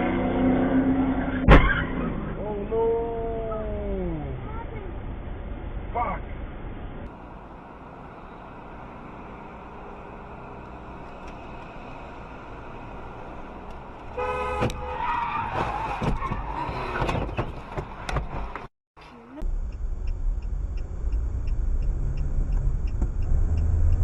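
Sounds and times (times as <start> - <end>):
car road and engine noise: 0.0 - 24.0
car horn: 14.1 - 15.5.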